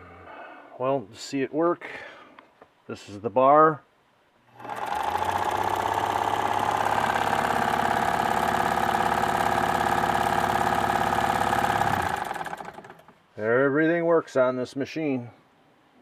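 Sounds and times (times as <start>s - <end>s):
sewing machine motor hum: 4.6s - 13.2s
sewing machine needle clatter: 4.6s - 13.2s.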